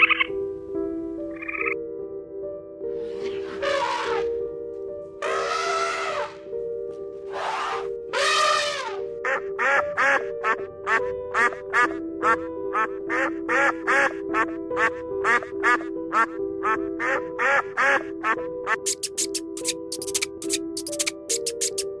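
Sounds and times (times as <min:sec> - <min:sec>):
background music with held notes: 0:00.0 - 0:22.0
short animal calls: 0:07.3 - 0:09.0.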